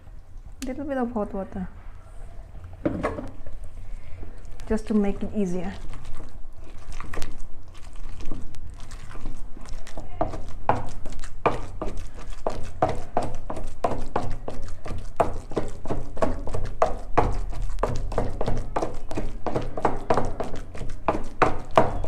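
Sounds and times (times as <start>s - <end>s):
pestle pounding paste: 5.8s - 22.0s.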